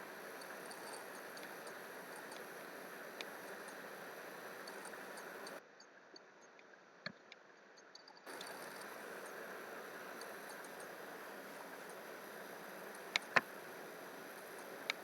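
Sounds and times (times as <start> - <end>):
faint clicks: 0.0 - 5.6, 8.0 - 15.0
microphone noise hiss: 0.0 - 5.6, 8.3 - 15.0.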